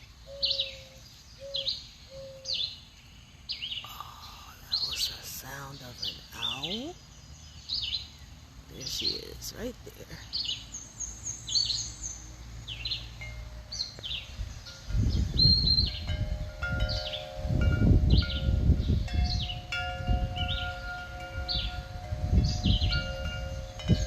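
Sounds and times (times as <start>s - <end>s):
birds chirping: 0.0s - 24.0s
wind chimes ringing: 13.0s - 24.0s
wind rumble on microphone: 13.7s - 24.0s.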